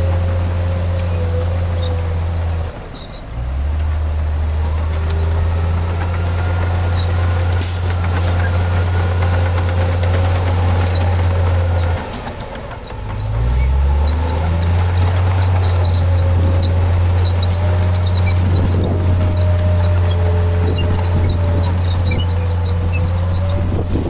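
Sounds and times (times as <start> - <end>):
diesel engine deep drone: 0.0 - 24.0.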